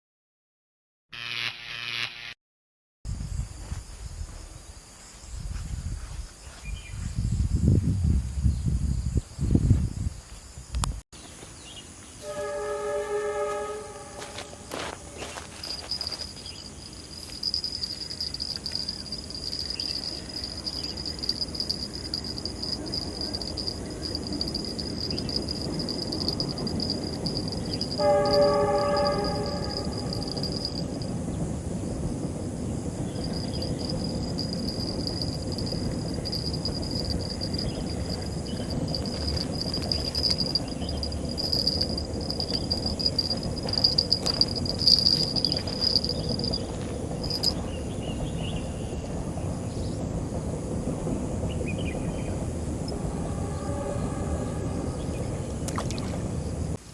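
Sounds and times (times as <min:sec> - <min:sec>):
high drone of insects: 0:01.2 - 0:02.4, 0:03.1 - 0:56.9
train rumbling past: 0:11.9 - 0:56.9
train horn blast: 0:12.2 - 0:15.3, 0:28.0 - 0:30.7, 0:52.9 - 0:55.5.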